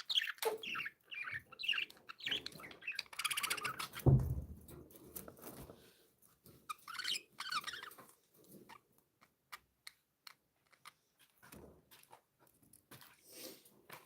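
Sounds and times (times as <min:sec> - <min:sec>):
budgerigars chirping: 0:00.0 - 0:04.1, 0:06.7 - 0:08.0.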